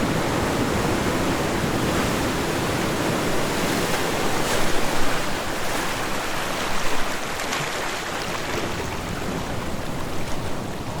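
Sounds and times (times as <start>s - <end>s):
ocean waves washing onto shore: 0.0s - 11.0s.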